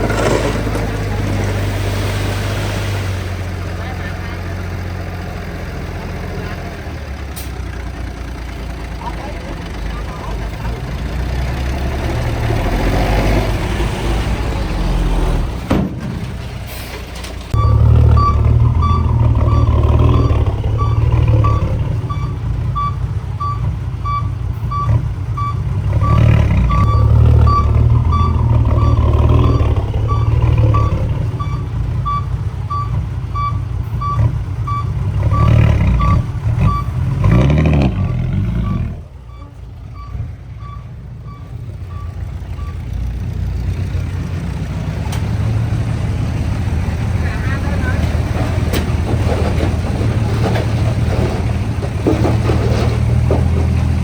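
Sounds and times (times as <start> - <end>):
heavy diesel engine running: 0.0 - 54.0
reverse alarm beeping: 17.6 - 36.9.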